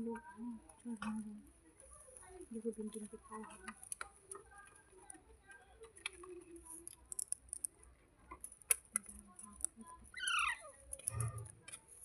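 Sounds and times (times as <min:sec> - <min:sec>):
parrot squawk: 0:10.2 - 0:10.8.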